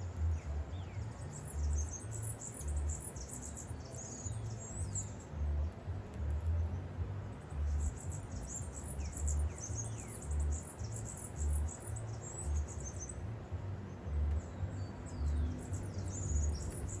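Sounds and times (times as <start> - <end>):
small birds chirping: 0.0 - 17.0
deep bass pulse: 4.8 - 8.3.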